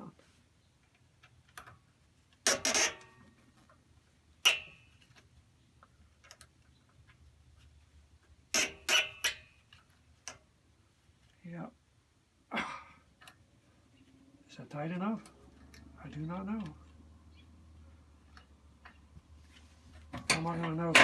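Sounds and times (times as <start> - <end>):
hand tools knocking on metal parts: 4.4 - 5.0, 20.0 - 21.0.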